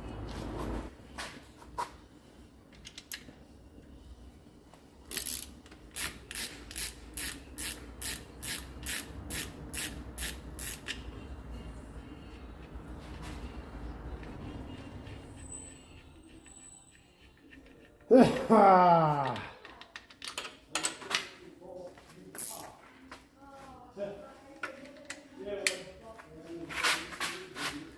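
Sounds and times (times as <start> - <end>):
ratchet clicking: 5.1 - 11.0.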